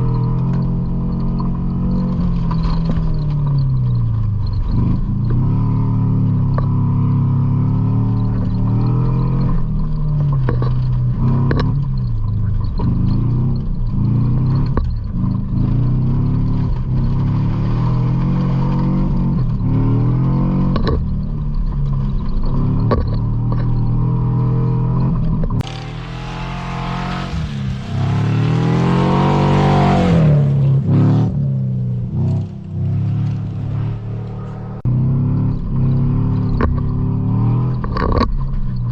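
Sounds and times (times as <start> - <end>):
truck engine revving: 22.0 - 38.3.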